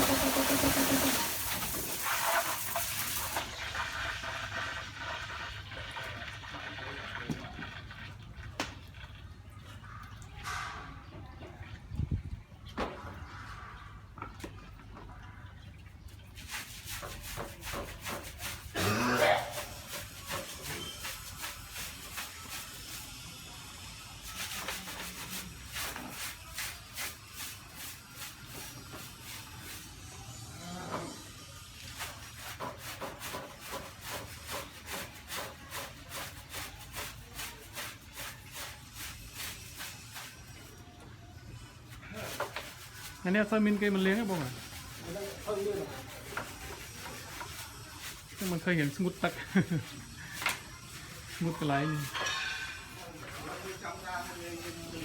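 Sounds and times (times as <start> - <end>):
motor running: 0.0 - 1.7
scrubbing soapy surface: 0.0 - 3.5, 16.3 - 30.1, 31.8 - 40.8, 41.8 - 55.0
water hissing and splashing: 0.0 - 5.0.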